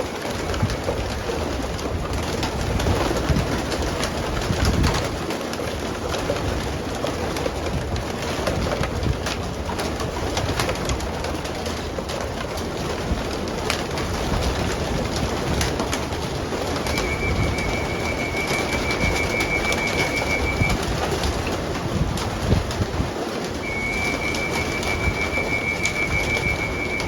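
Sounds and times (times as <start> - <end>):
wings flapping: 0.0 - 27.0
scattered clicks: 8.7 - 21.6, 23.6 - 27.0
pigeons cooing: 16.8 - 20.7, 23.6 - 27.0
steady high-pitched tone: 16.9 - 20.8, 23.6 - 27.0.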